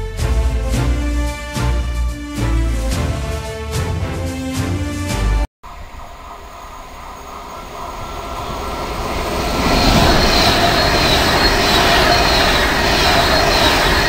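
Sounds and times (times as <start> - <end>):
electric train passing: 5.7 - 14.0
thin high whine: 5.7 - 14.0.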